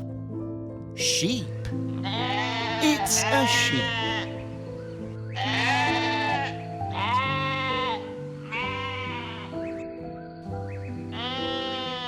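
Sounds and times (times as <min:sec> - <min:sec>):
background music: 0:00.0 - 0:12.0
sheep bleating: 0:02.0 - 0:04.4, 0:05.4 - 0:09.5, 0:11.1 - 0:12.0.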